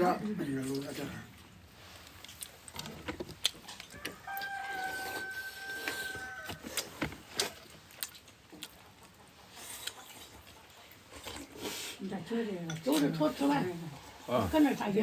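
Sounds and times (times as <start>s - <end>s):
rooster crowing: 3.9s - 6.7s.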